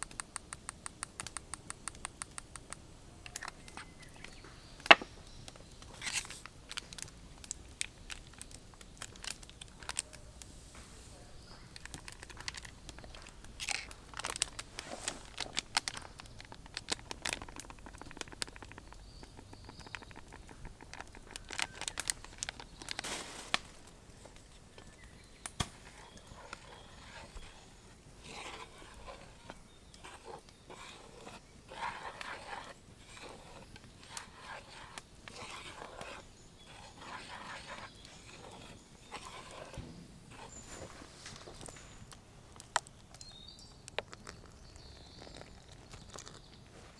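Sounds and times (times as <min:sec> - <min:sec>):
soft rustling: 0:05.8 - 0:18.9, 0:20.4 - 0:42.2
crisp cracks and crunches: 0:11.7 - 0:19.0, 0:19.9 - 0:24.5.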